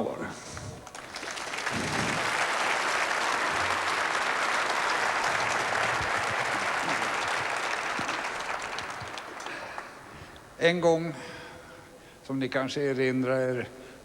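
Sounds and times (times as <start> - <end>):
audience applauding: 0.8 - 10.5.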